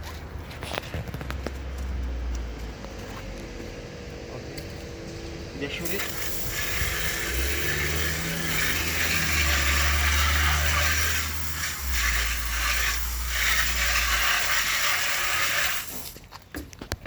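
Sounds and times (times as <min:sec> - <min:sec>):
pressure washer spray hiss: 0:05.7 - 0:16.2
washer motor hum: 0:05.9 - 0:15.9.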